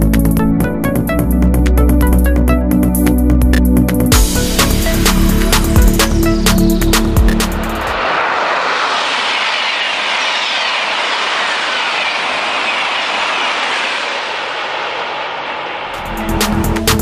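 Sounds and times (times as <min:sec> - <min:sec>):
high-speed train rushing past: 0:04.1 - 0:17.0
faint falling whines: 0:04.6 - 0:16.6.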